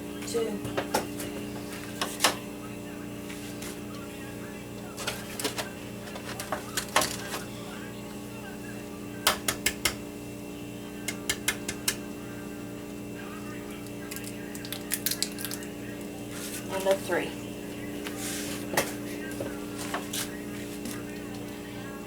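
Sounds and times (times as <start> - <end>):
steady low hum: 0.0 - 22.0
eggs cracking on a bowl: 11.1 - 12.0, 13.8 - 16.1.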